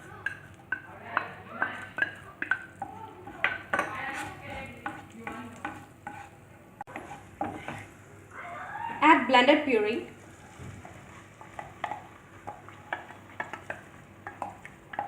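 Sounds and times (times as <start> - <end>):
butter sizzling: 0.0 - 15.0.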